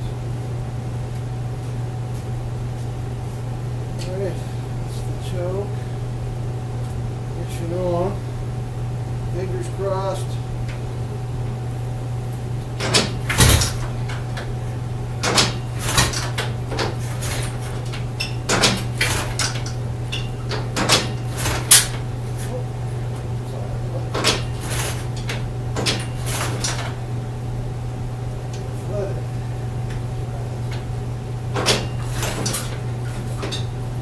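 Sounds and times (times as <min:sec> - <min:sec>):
motorcycle kick-starter knocks: 0:12.8 - 0:13.9.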